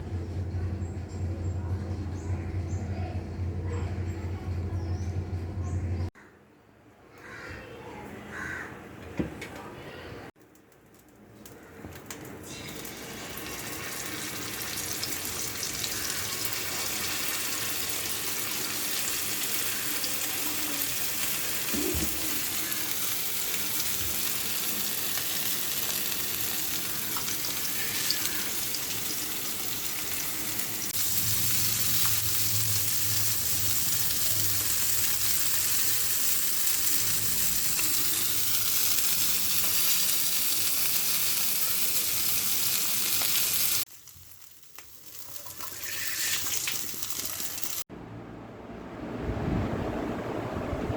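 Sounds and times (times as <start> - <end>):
fish sizzling in a pan: 12.6 - 47.8.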